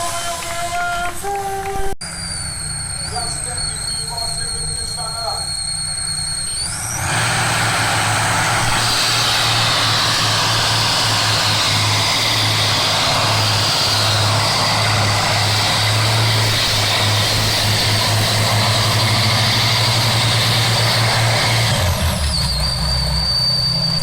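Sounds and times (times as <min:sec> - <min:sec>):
thin high whine: 0:00.0 - 0:24.0
tractor engine at full throttle: 0:00.0 - 0:24.0.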